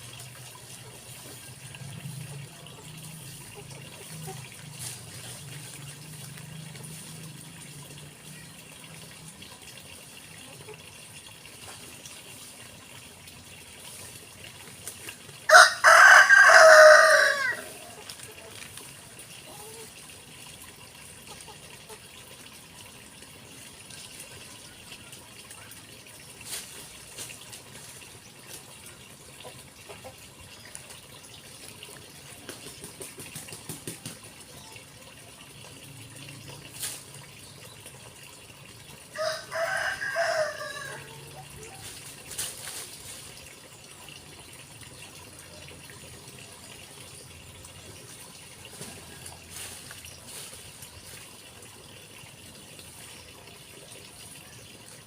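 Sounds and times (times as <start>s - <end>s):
rooster crowing: 15.5s - 17.7s, 39.2s - 41.1s.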